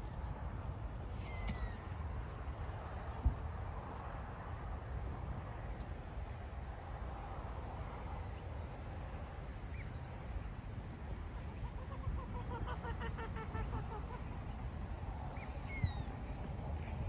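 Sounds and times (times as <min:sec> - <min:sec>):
small birds high chirps: 0:15.4 - 0:16.1.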